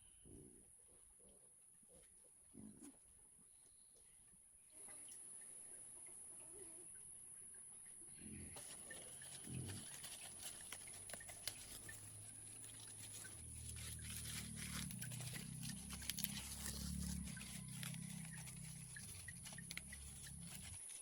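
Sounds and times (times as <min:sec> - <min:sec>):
low animal calls: 0:08.2 - 0:20.8
light crackling: 0:08.6 - 0:21.0.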